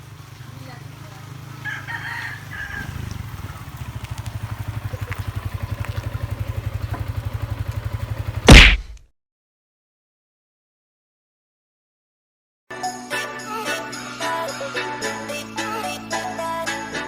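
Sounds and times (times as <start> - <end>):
small engine running: 0.0 - 8.5
loud thump: 8.5 - 9.0.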